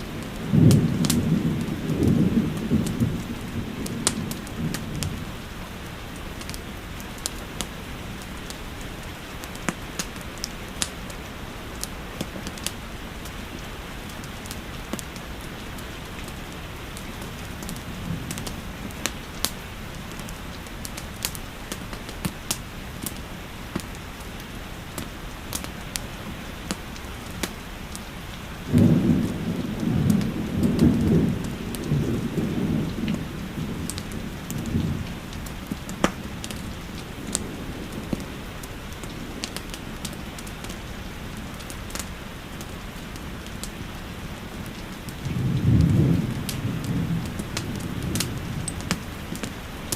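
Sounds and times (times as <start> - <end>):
thunder rumbling: 0.0 - 8.6, 14.3 - 20.4, 28.5 - 42.1, 44.3 - 49.9
steady rain: 0.0 - 49.9
wood fire crackling: 0.0 - 49.9.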